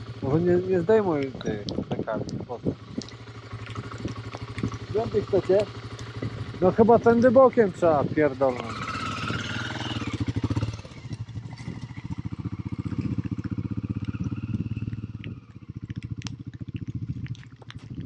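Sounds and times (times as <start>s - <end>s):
motorcycle engine at low revs: 0.0s - 18.0s.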